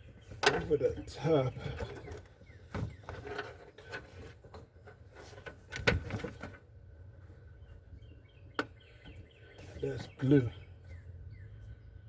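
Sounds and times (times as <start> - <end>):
carpet rubbing and rustling: 2.6 - 6.7.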